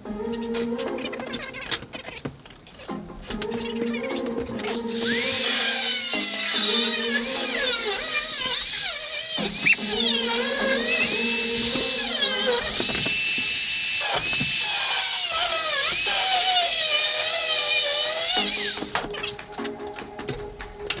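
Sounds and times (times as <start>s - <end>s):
electric drill whining: 4.8s - 19.2s.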